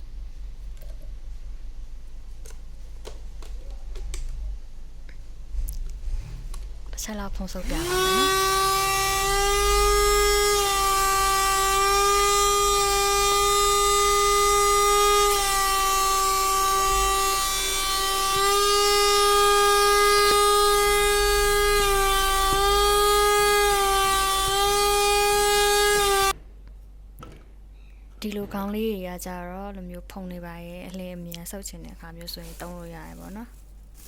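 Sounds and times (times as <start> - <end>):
handheld vacuum cleaner whine: 7.6 - 26.4.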